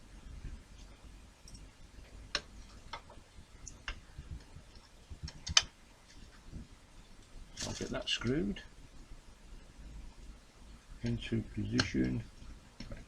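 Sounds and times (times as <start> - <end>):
small parts clicking and tapping: 0.8 - 6.4, 11.7 - 13.0.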